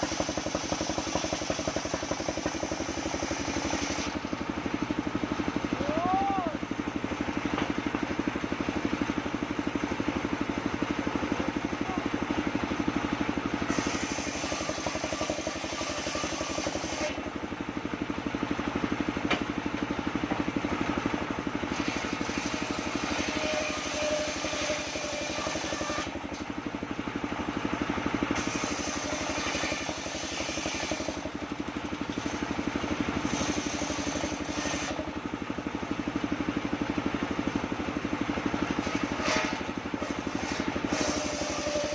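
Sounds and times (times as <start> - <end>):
saw blade cutting wood: 0.0 - 4.2, 13.6 - 17.3, 21.6 - 26.4, 28.4 - 31.4, 32.1 - 35.1, 38.8 - 41.9
sawmill engine running: 0.0 - 41.9.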